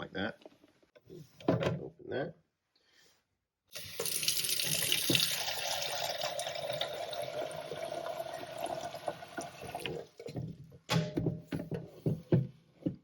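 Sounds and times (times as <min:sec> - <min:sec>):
faucet water filling reservoir: 0:03.7 - 0:10.4.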